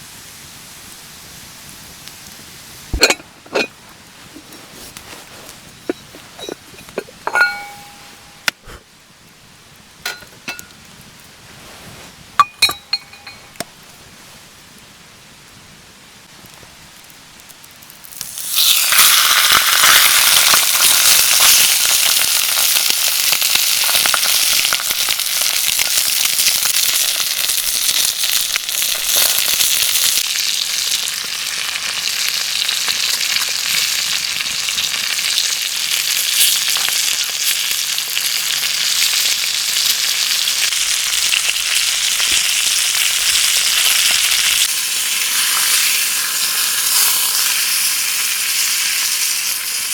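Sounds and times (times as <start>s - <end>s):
food sizzling in hot oil: 1.1s - 8.5s, 17.8s - 49.9s.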